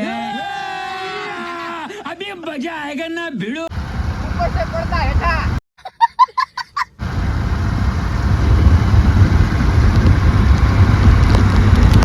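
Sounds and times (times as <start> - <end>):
heavy rain falling: 7.0 - 12.0
wind buffeting microphone: 7.0 - 12.0.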